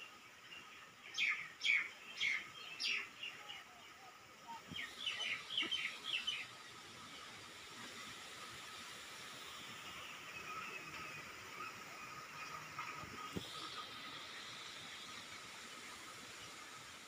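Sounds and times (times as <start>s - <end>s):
small birds chirping: 0.3s - 7.3s.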